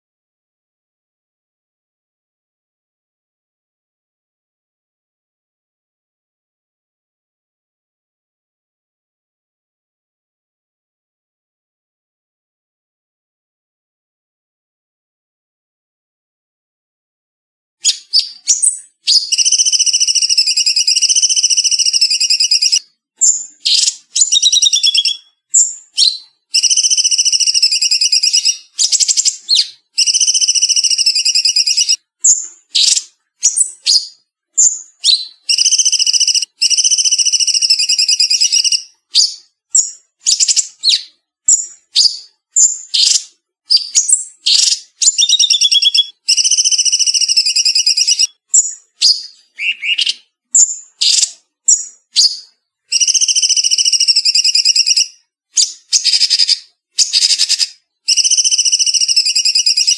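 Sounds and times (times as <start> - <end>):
bulbul singing: 17.8 - 59.9.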